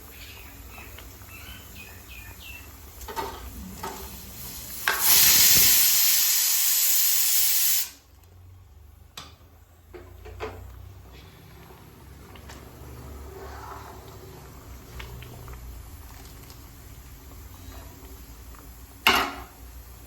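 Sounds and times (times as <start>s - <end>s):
food sizzling in hot oil: 2.8s - 8.0s.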